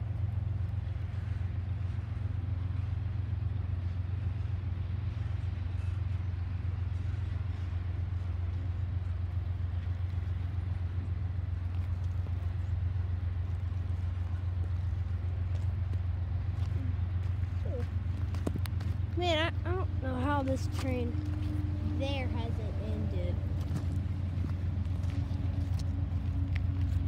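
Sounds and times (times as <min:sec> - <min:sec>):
freight train wheels rumbling: 0:00.0 - 0:27.0.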